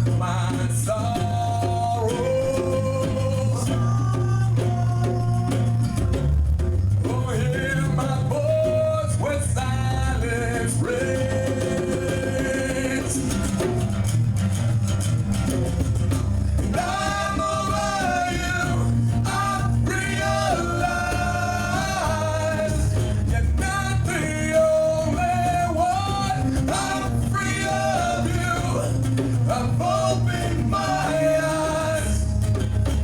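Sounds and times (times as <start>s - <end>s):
person singing: 0.0s - 6.2s, 7.1s - 13.4s, 16.7s - 32.3s
rock band playing live: 11.7s - 33.0s.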